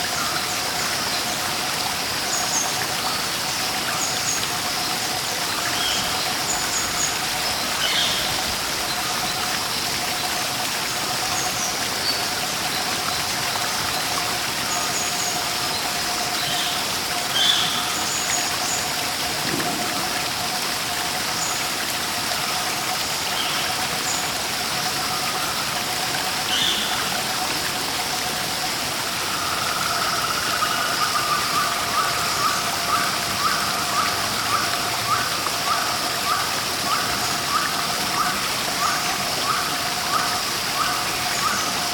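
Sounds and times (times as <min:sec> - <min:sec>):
rushing water: 0:00.0 - 0:41.9.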